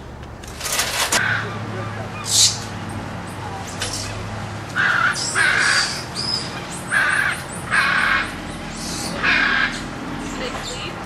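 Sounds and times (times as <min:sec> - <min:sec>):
animal harsh calls: 0:04.7 - 0:10.0.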